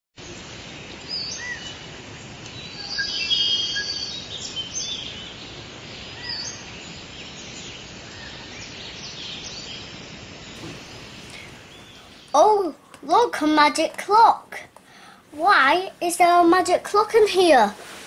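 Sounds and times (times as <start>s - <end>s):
steady background hiss: 0.2s - 18.0s
birds chirping and calling: 2.5s - 12.8s.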